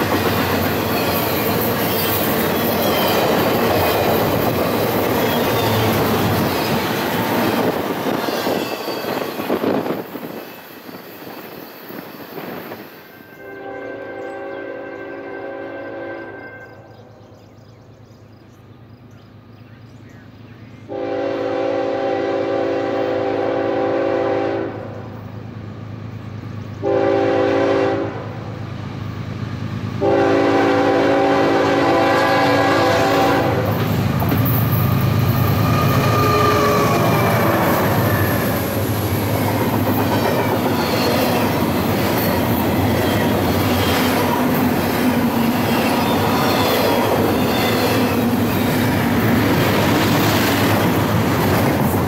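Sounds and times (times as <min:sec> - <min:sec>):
train wheels clattering over rails: 0:00.0 - 0:13.0, 0:33.6 - 0:52.0
locomotive air horn blasts: 0:13.3 - 0:16.8, 0:20.9 - 0:25.0, 0:26.8 - 0:28.4, 0:30.0 - 0:33.8, 0:35.5 - 0:38.5.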